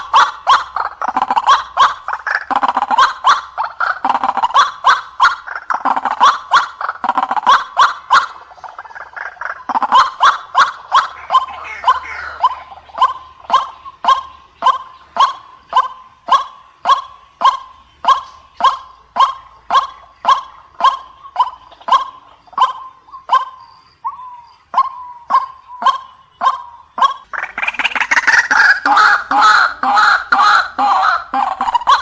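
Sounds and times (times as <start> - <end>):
waterhen harsh call: 0.0 - 32.0.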